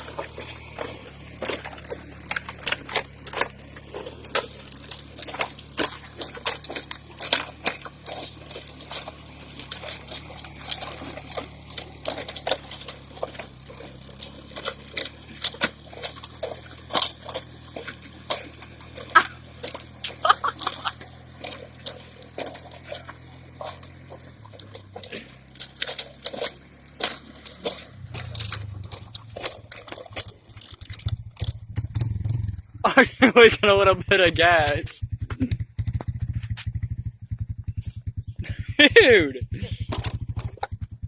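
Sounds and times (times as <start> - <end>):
sharp metal clicks and clinks: 0.0 - 32.6
low engine hum: 0.0 - 41.0.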